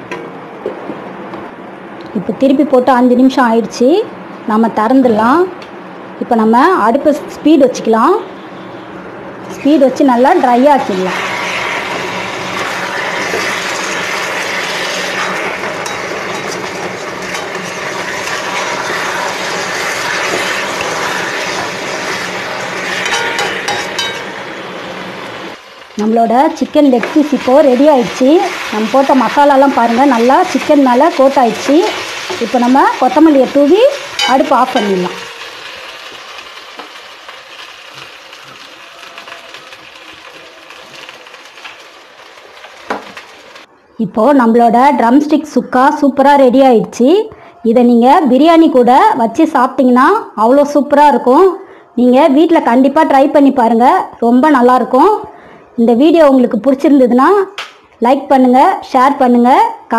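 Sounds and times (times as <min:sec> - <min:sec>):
chicken sizzling in a pan: 0:10.5 - 0:43.7.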